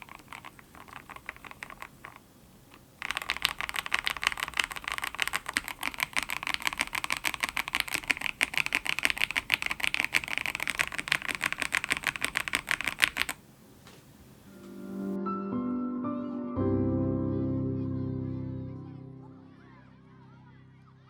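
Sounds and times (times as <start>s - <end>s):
typing on mechanical keyboard: 0.0s - 13.4s.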